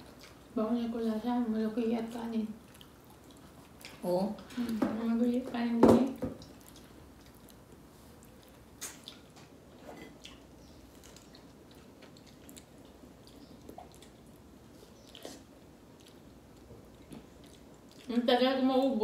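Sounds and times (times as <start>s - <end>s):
biting and chewing mango: 6.4s - 18.9s
wet mouth clicks and smacks: 8.2s - 9.4s.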